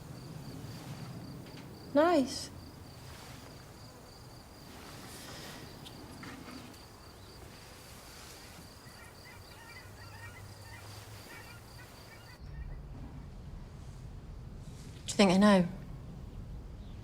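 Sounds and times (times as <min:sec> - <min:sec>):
high insect trill: 0:00.0 - 0:12.4
faint twittering bird calls: 0:00.0 - 0:12.8
low rumble: 0:12.4 - 0:17.0.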